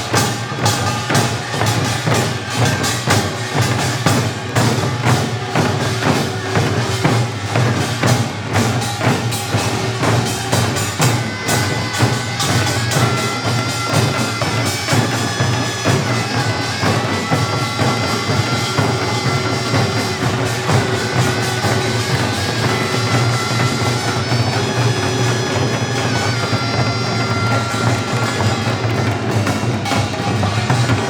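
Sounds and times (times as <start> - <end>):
drum and gong strikes: 0.0 - 31.0.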